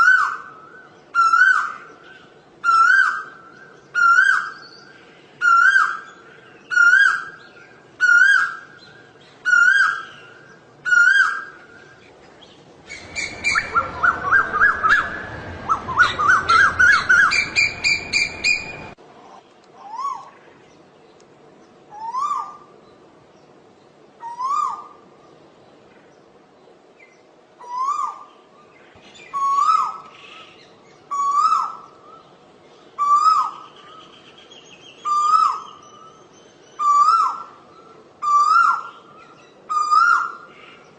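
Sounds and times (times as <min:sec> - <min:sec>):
background noise: 0:00.0 - 0:40.9
bird calling rising whistle: 0:12.9 - 0:19.0.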